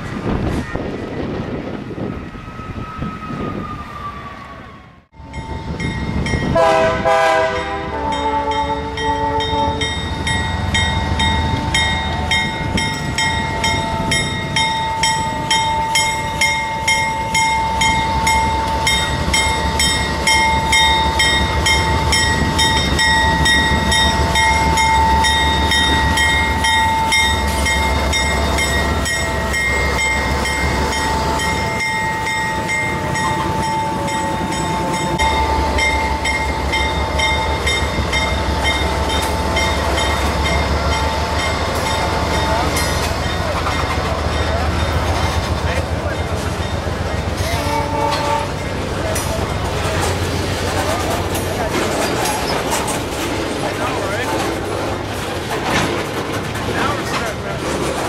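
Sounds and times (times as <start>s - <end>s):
train rumbling past: 0.0s - 58.0s
train horn chord: 6.5s - 10.0s, 47.4s - 48.6s.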